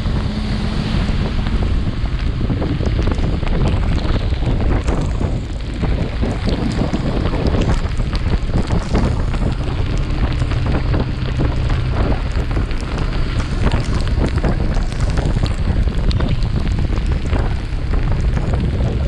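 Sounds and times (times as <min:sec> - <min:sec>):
motorcycle engine humming: 0:00.0 - 0:19.0
wind buffeting microphone: 0:00.0 - 0:19.0.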